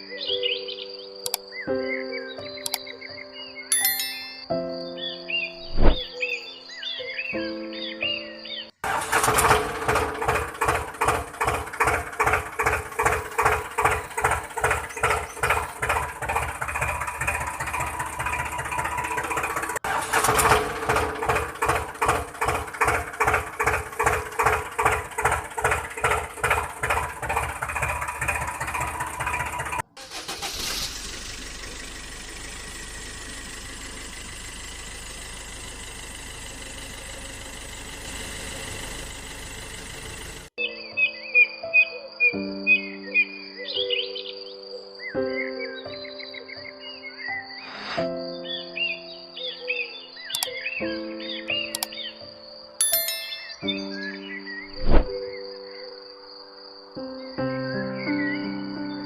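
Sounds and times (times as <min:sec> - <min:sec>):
steady engine hum: 0:08.9 - 0:40.5
tractor engine chugging: 0:08.9 - 0:40.5.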